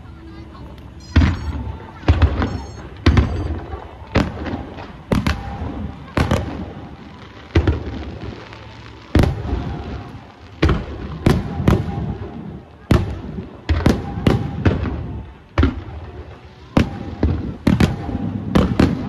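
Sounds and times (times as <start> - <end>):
echo rumble and crackle: 0.0 - 19.0
firework shells booming: 1.1 - 6.8, 16.7 - 19.0.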